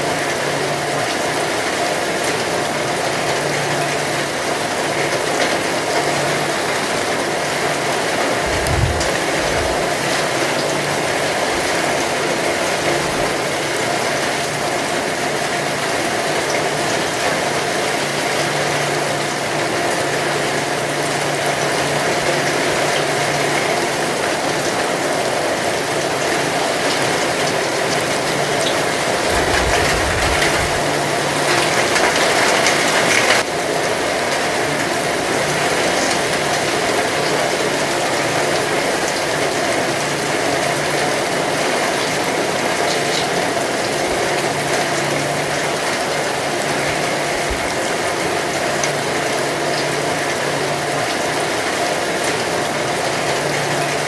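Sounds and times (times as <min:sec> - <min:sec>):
heavy rain falling: 0:00.0 - 0:54.0
low rumble: 0:08.4 - 0:09.9, 0:29.2 - 0:31.2.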